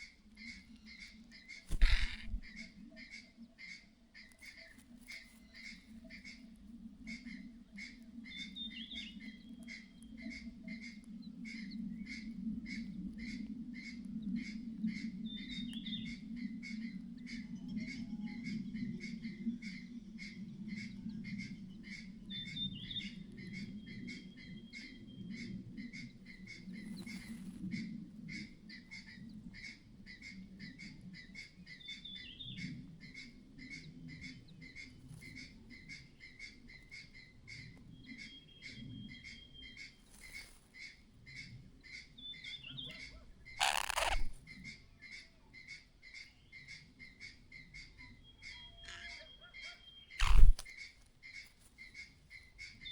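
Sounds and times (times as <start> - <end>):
harsh bird call: 1.7 - 2.5, 43.6 - 44.4, 48.8 - 50.6
bird clattering call: 1.7 - 2.6, 43.6 - 44.4, 50.2 - 50.8.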